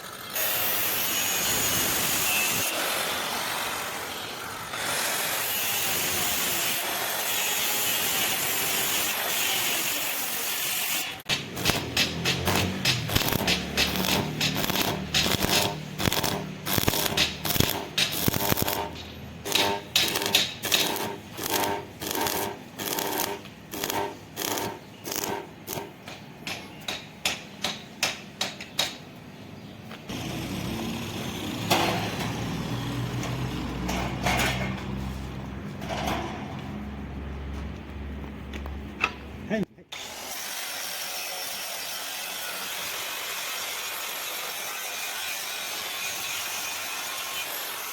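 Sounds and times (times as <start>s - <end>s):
hammer striking iron: 11.3s - 29.0s.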